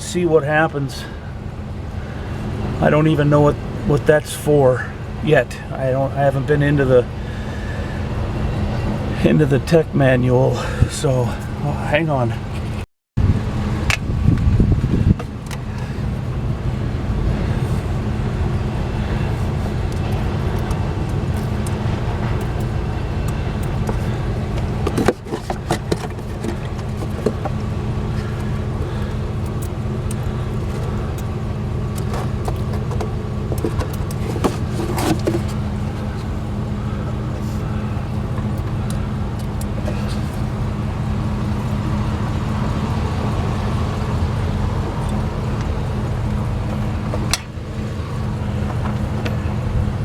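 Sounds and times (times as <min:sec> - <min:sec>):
low engine drone: 0:00.0 - 0:50.0
sharp metallic clicks and knocks: 0:46.7 - 0:47.6.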